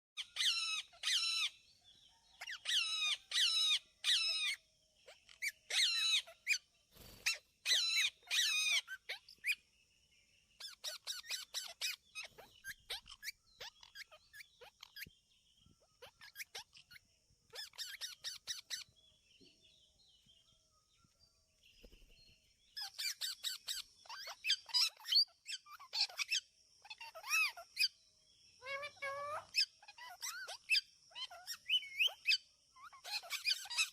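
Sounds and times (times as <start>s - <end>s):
parrot chicks calling: 0.2s - 1.7s, 2.4s - 9.6s, 10.6s - 15.2s, 15.8s - 18.9s, 22.8s - 28.0s, 28.6s - 33.9s.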